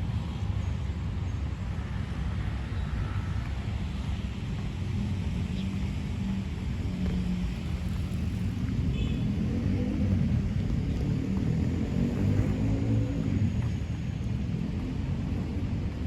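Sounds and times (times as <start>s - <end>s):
vehicle engine rumbling: 3.5s - 16.0s.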